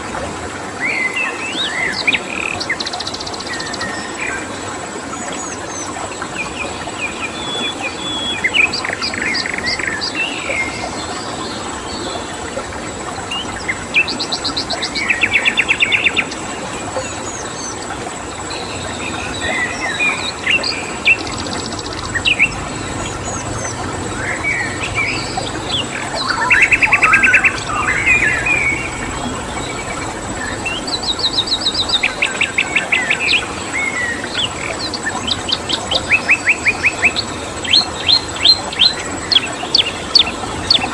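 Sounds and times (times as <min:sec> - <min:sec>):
stream water flowing: 0:00.0 - 0:40.9
songbirds chirping and singing: 0:02.4 - 0:04.2, 0:19.3 - 0:40.9
bird trills: 0:17.0 - 0:17.8, 0:21.2 - 0:32.8.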